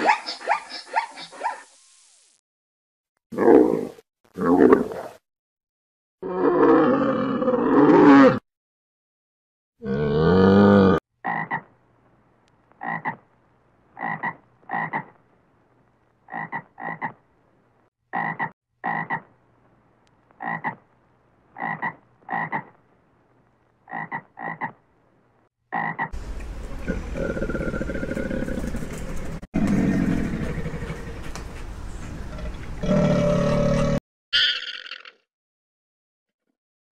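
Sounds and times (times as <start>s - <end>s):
animal croaking calls: 12.8s - 13.3s, 14.0s - 15.2s, 16.3s - 17.2s, 18.1s - 19.3s, 20.4s - 20.9s, 21.5s - 22.8s, 23.9s - 24.8s, 25.7s - 31.3s
loud drawn-out animal call: 25.7s - 31.3s
rough noisy animal sound: 25.7s - 34.7s.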